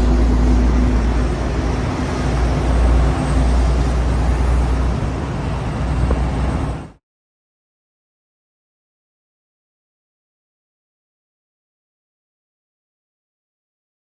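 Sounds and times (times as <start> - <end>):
tram rumbling: 0.0 - 7.0.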